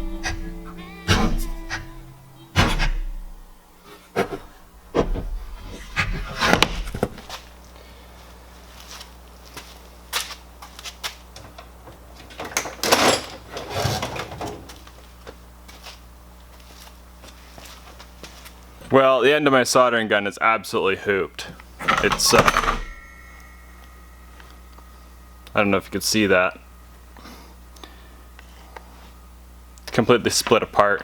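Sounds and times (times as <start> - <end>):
steady low hum: 0.0 - 31.0
tools clattering on a workbench: 11.4 - 14.7, 21.8 - 24.6.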